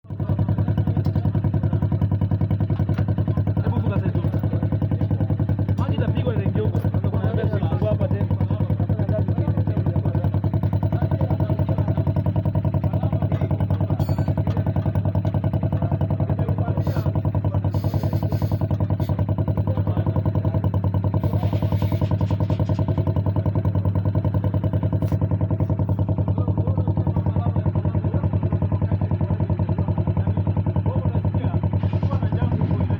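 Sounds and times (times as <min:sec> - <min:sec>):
motorcycle engine idling: 0:00.0 - 0:32.9.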